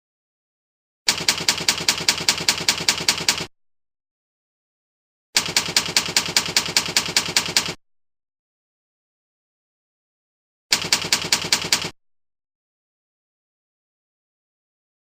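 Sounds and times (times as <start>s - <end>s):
typewriter keystroke clicks: 1.1s - 3.5s, 5.4s - 7.8s, 10.7s - 12.0s.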